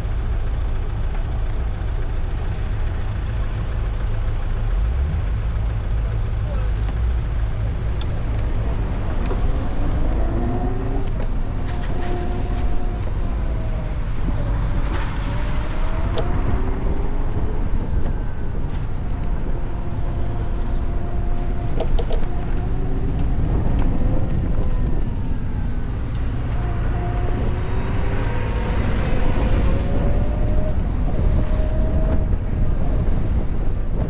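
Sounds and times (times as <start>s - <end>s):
vehicle and motor hums: 0.0s - 34.0s
wind noise: 7.3s - 34.0s.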